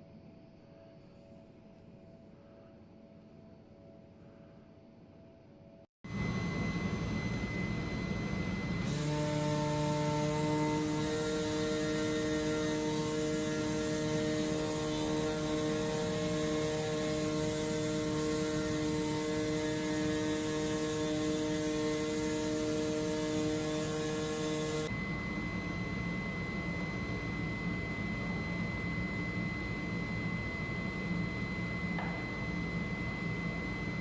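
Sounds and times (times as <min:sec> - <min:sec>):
cutting machine hum: 0:06.1 - 0:28.9.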